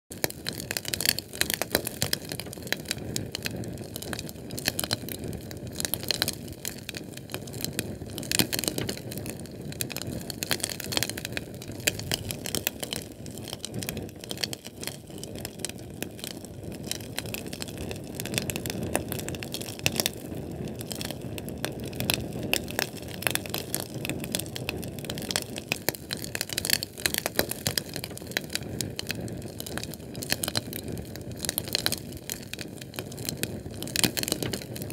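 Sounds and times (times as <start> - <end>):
canned fuel flame crackling: 0.1 - 34.9
sharp pops and snaps: 0.1 - 34.9
low rush of burning: 6.6 - 25.2.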